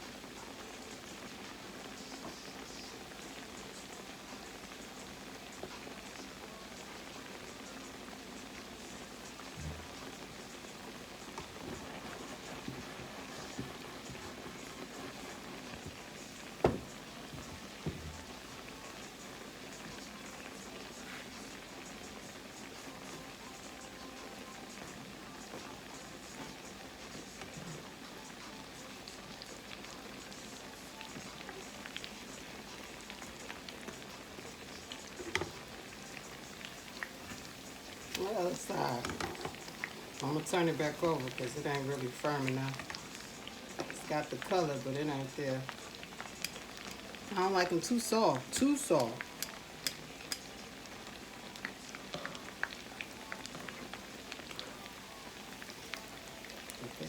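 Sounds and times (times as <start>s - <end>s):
food sizzling in hot oil: 0.0s - 57.0s
oil crackles and pops: 7.2s - 23.2s, 29.0s - 57.0s.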